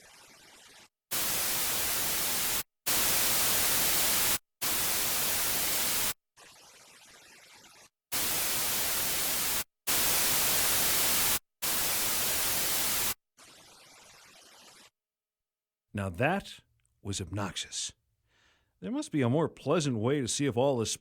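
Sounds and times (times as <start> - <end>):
pink noise test bursts: 1.1 - 7.0, 7.6 - 14.7.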